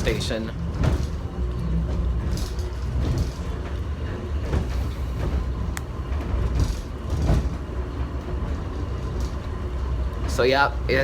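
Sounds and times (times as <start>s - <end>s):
subway train rumbling: 0.0s - 11.0s.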